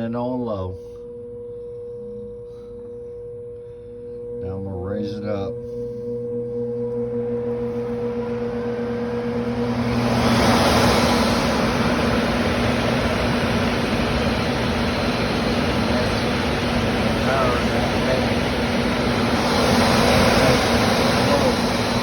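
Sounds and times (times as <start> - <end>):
blower fan motor hum: 0.0 - 22.0
rush of air from fan: 5.6 - 22.0.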